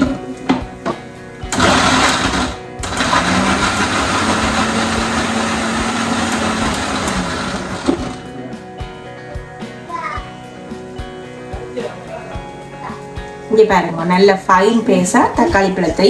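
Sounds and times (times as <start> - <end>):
mixer grinder running: 1.5 - 8.5.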